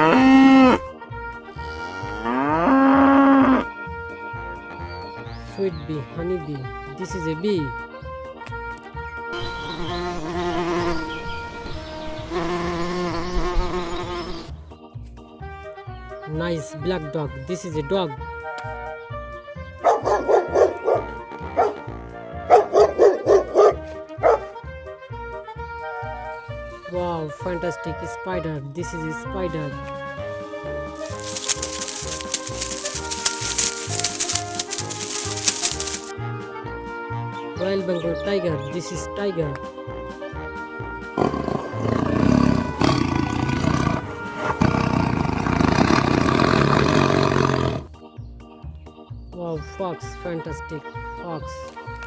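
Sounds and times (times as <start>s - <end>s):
background music: 0.0s - 52.0s
dog barking: 19.8s - 24.6s.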